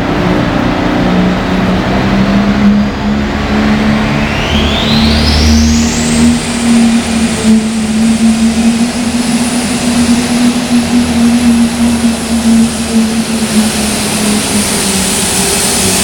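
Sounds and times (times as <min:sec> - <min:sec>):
high whine: 0:00.0 - 0:16.0
loud tractor engine under load: 0:00.0 - 0:16.0.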